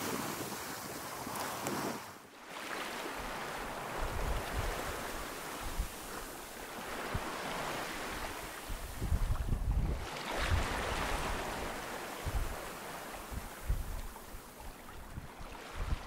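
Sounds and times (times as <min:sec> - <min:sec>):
wind buffeting microphone: 0:03.2 - 0:16.0.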